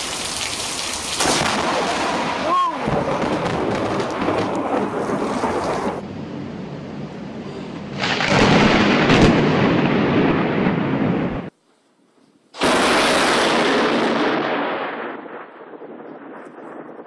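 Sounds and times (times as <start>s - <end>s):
heavy rain pouring: 0.0s - 6.0s
loud thunderclap: 1.2s - 6.0s, 8.0s - 11.5s, 12.6s - 17.0s
thunder rumbling: 1.2s - 11.5s, 12.6s - 17.0s.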